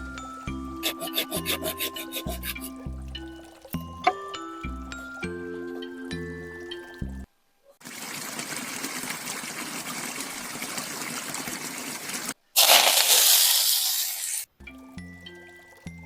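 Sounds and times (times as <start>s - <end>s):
rushing water: 0.1s - 5.1s, 7.8s - 14.5s.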